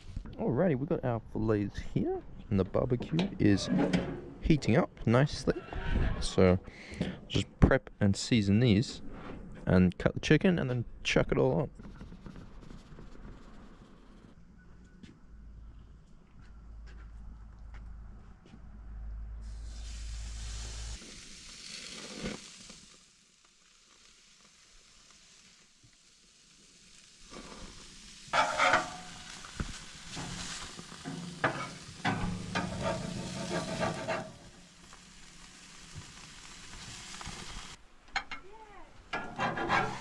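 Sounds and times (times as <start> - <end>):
food sizzling and crackling: 19.4 - 40.0.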